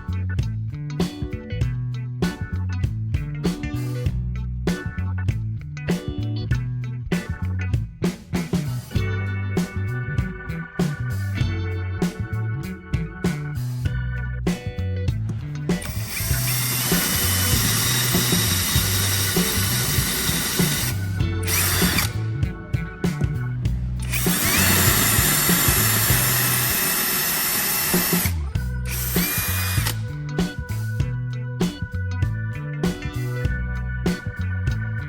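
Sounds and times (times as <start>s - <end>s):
electric drill whining: 15.8s - 22.2s, 24.0s - 30.0s.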